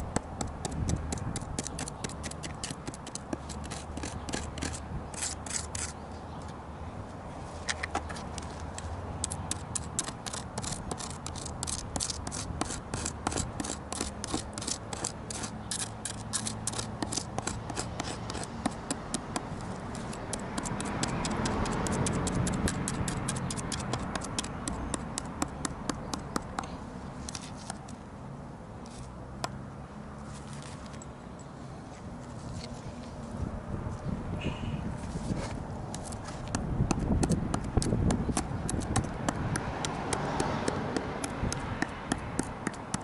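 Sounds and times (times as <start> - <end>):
carving tool scraping charred wood: 0.0 - 6.0, 7.6 - 28.0, 35.1 - 43.0.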